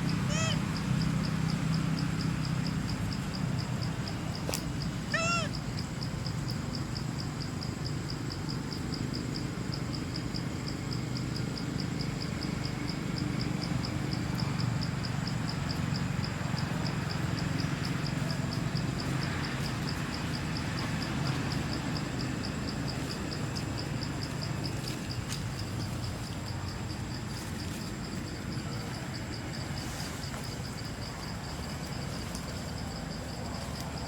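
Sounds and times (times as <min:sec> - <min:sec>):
monkey squealing call: 0:00.2 - 0:00.6, 0:05.1 - 0:05.6.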